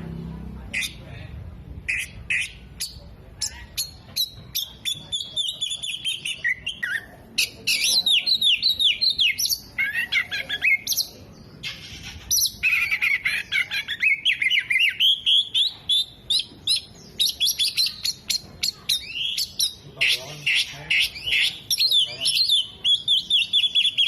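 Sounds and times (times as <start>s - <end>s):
bird singing whistles and trills: 2.8s - 11.1s, 12.4s - 19.8s, 21.0s - 24.0s.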